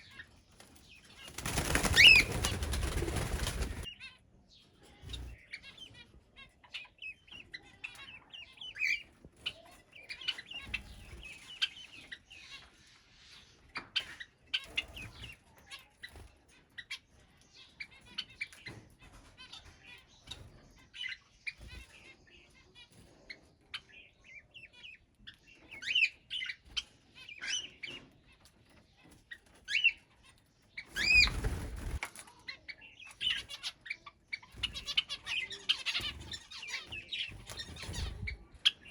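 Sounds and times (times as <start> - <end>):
birds chirping and whistling: 0.0 - 4.1, 5.0 - 18.9, 19.5 - 28.4, 29.3 - 32.0, 32.7 - 38.9
wings flapping: 1.2 - 3.9, 30.9 - 32.2, 37.3 - 38.5.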